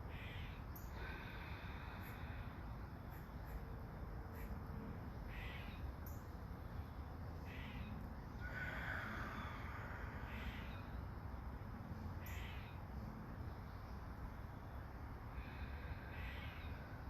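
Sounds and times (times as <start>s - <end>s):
low background hiss: 0.0s - 17.0s
bird calling: 5.3s - 6.2s, 7.4s - 11.0s, 12.2s - 12.8s.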